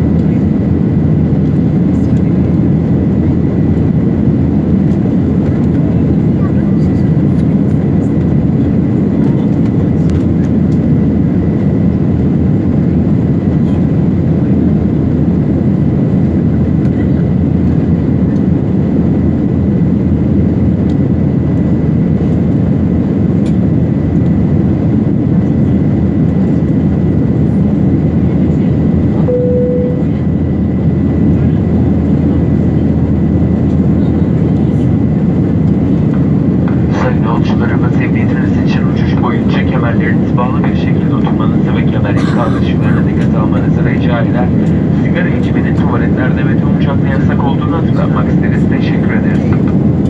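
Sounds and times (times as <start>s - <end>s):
airliner cabin roar: 0.0s - 50.0s
short single tone: 29.3s - 30.3s
faint high whine: 29.3s - 30.4s.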